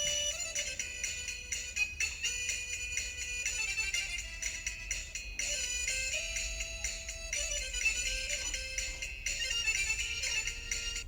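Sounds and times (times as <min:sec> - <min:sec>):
bell-like background music: 0:00.0 - 0:02.0.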